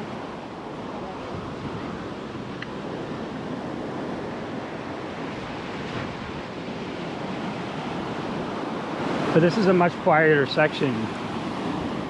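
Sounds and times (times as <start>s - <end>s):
wind on microphone: 0.0s - 9.4s
surf breaking on a beach: 0.0s - 12.0s.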